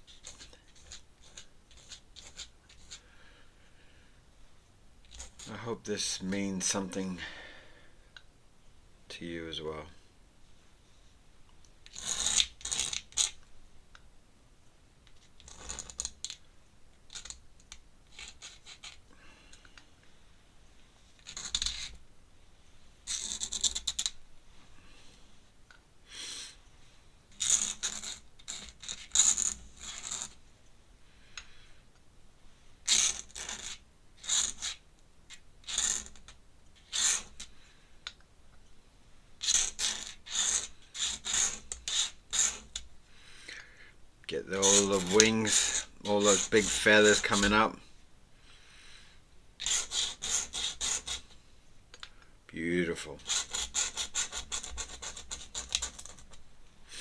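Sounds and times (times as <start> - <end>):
pen scratching on paper: 0.1 - 3.0, 36.8 - 37.4, 39.4 - 42.8, 44.5 - 47.6, 49.6 - 51.3, 53.2 - 56.4.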